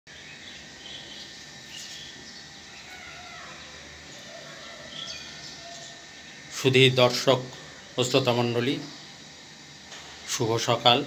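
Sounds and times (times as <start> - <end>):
faint bird chirps: 0.1 - 6.6.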